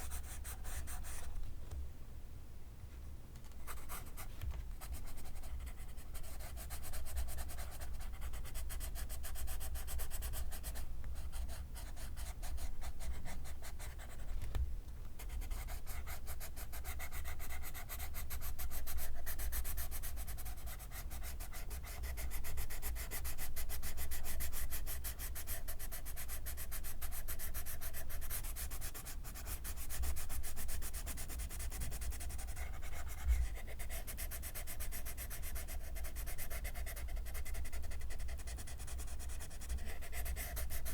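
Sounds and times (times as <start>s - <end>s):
pencil scratching on paper: 0.0s - 1.3s, 3.6s - 14.4s, 15.2s - 40.9s.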